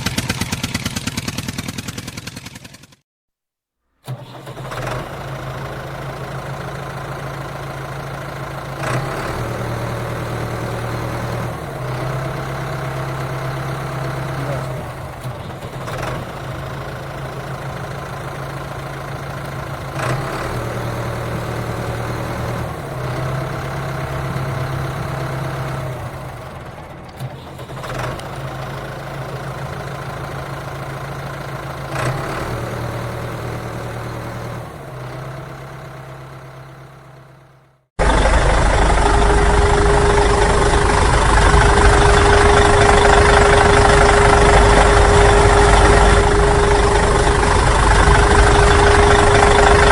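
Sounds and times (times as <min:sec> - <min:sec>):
engine running with low hum: 0:04.1 - 0:49.9
running sound with steady whine: 0:38.0 - 0:49.9.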